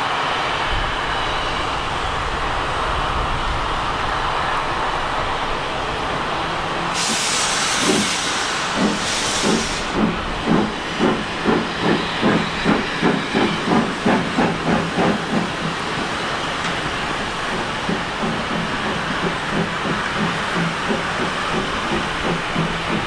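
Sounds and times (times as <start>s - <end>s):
steam locomotive chuffing: 0.0s - 23.0s
steam hiss bursts: 6.9s - 23.0s.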